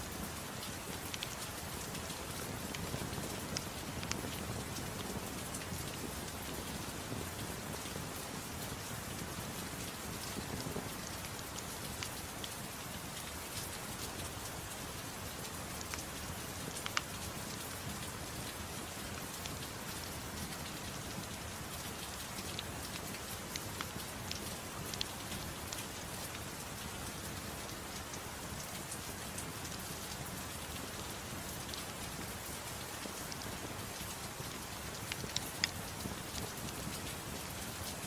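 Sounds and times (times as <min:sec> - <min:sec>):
gentle rain: 0:00.0 - 0:38.0
wood fire crackling and popping: 0:00.2 - 0:08.4, 0:21.9 - 0:26.4, 0:33.0 - 0:37.9.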